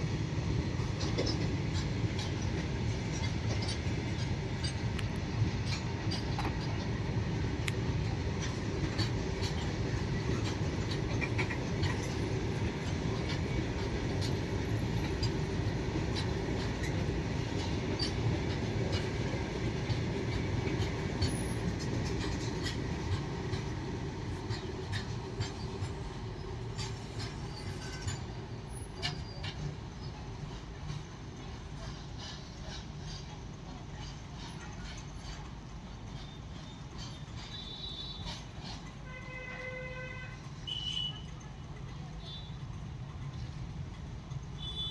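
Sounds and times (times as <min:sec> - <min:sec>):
train wheels rumbling on track: 0:00.0 - 0:44.9
wheels clicking and clacking: 0:00.8 - 0:33.3.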